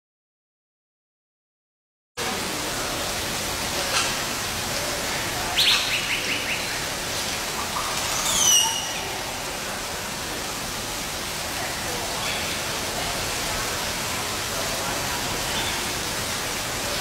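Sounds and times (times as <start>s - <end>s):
bird chirps: 5.6s - 6.8s, 7.8s - 9.2s.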